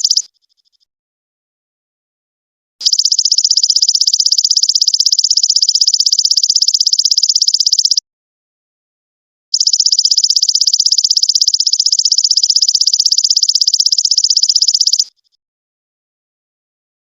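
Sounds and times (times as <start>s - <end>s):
locust high pulsed trill: 9.6s - 15.1s.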